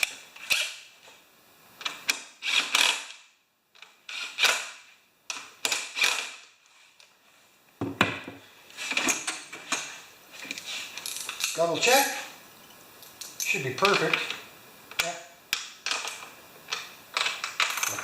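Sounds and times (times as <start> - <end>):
wrench tightening nuts: 2.0 - 3.2, 4.1 - 4.8.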